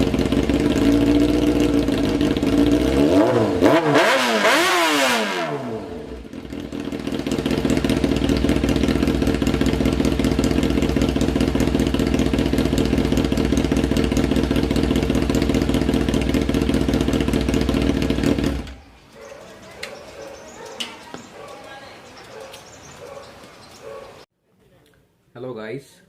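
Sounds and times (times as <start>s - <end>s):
motorcycle engine revving and idling: 0.0s - 18.9s.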